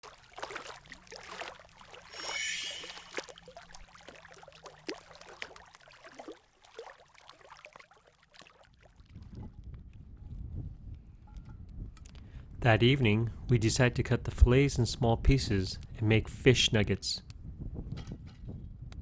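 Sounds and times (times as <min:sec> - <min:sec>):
paddle splashing water: 0:00.0 - 0:09.2.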